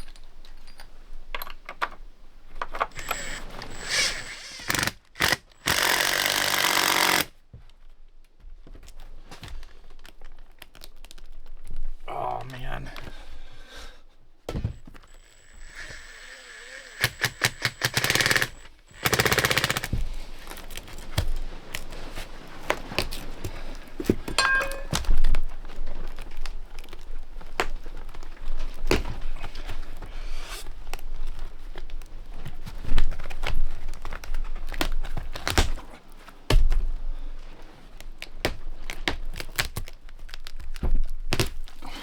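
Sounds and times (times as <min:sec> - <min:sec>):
tearing and crinkling: 0:08.8 - 0:12.0, 0:19.9 - 0:24.3, 0:25.1 - 0:42.0
knocks and thunks of hand work: 0:14.5 - 0:14.9, 0:24.0 - 0:25.4.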